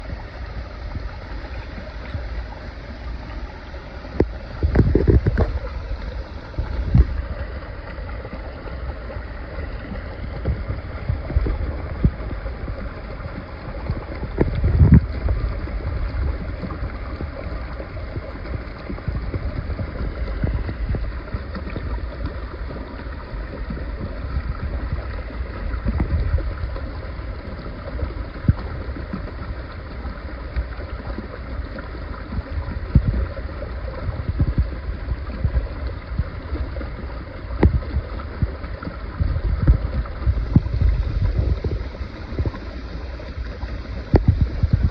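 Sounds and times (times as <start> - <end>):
stream water running: 0.0 - 44.9
wind rumbling on microphone: 0.0 - 44.9.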